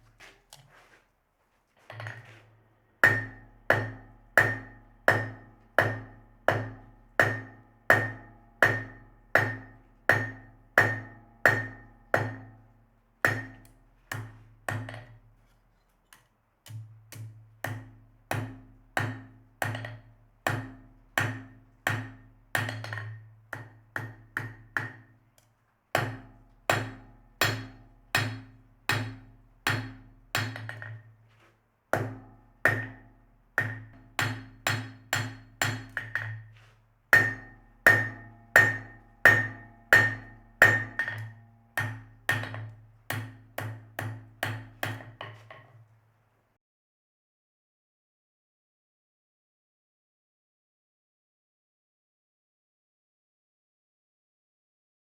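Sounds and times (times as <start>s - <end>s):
hammer striking steel on anvil: 3.0s - 12.6s, 13.3s - 15.2s, 16.7s - 25.1s, 26.0s - 31.1s, 32.0s - 36.5s, 37.1s - 45.6s.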